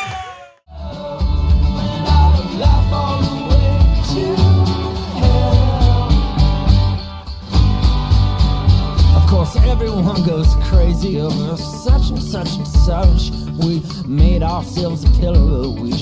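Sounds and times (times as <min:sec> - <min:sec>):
country song with guitar: 0:00.0 - 0:16.0
pulsing bass beat: 0:07.6 - 0:15.9.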